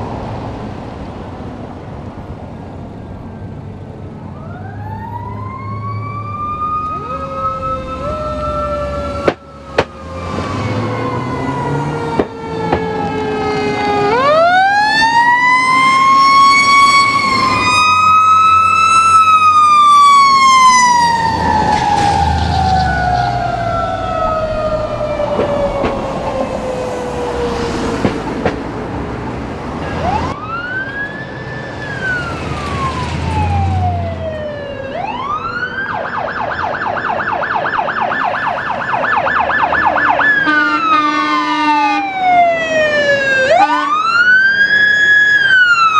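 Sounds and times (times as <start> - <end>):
emergency siren wailing and yelping: 4.2 - 45.9
vehicle engine rumbling: 5.4 - 35.8.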